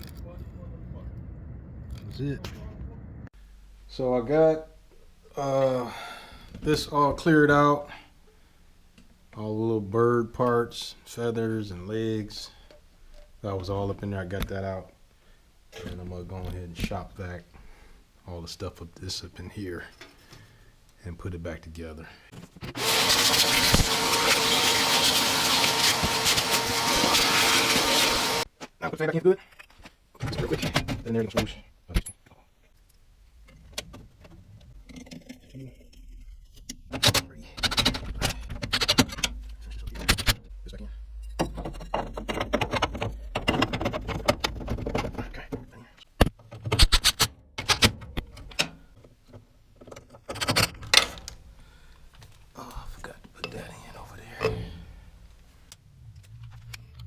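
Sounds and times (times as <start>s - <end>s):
shop vacuum running: 22.8s - 28.4s
metal parts clicking and scraping: 33.4s - 45.5s.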